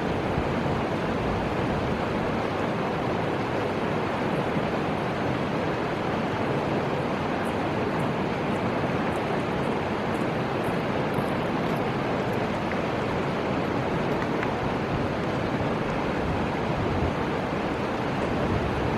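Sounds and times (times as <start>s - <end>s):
river water rushing: 0.0s - 18.9s.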